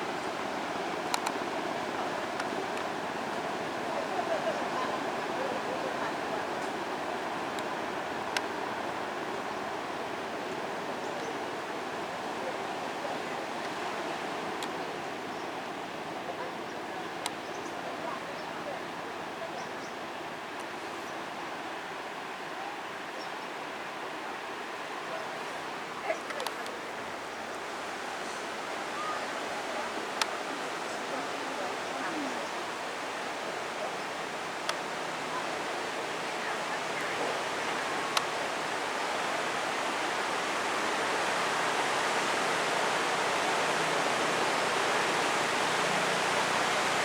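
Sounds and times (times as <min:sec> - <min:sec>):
water rushing and churning: 0:00.0 - 0:17.3, 0:21.4 - 0:47.0
faint sharp clicks: 0:01.1 - 0:01.4, 0:07.5 - 0:07.7, 0:14.6 - 0:14.8, 0:17.2 - 0:17.4, 0:26.2 - 0:26.8, 0:30.1 - 0:30.4, 0:34.6 - 0:34.9, 0:38.1 - 0:38.4.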